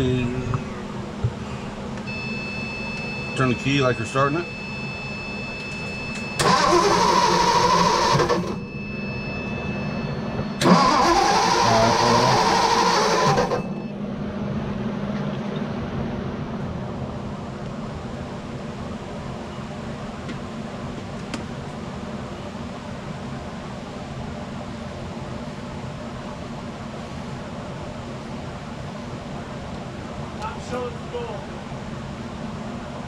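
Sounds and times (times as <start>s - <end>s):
steady low hum: 0.0s - 12.8s, 13.4s - 33.0s
starter cranking engine: 6.4s - 8.6s, 10.6s - 13.7s.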